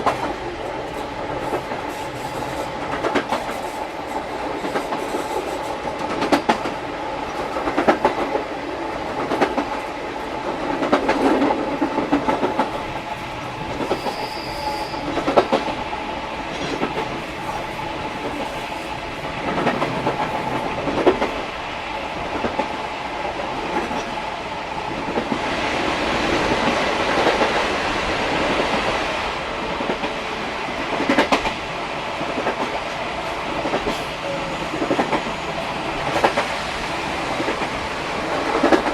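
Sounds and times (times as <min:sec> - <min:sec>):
train wheels clicking on rail joints: 0:00.0 - 0:21.6, 0:29.6 - 0:38.9
train running noise: 0:00.0 - 0:38.9.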